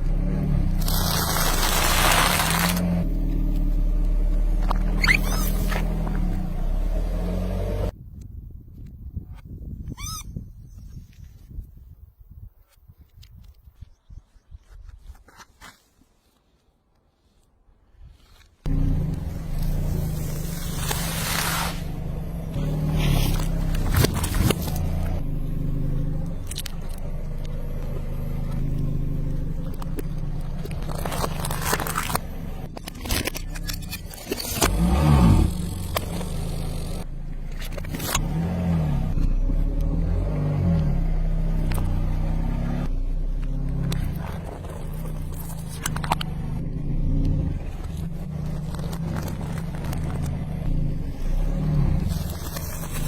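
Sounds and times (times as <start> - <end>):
car engine running: 0.0 - 7.9, 18.7 - 53.0
cracking under a tyre: 0.7 - 3.6, 22.5 - 38.3, 43.3 - 53.0
short squeak: 4.8 - 5.9, 9.8 - 10.9.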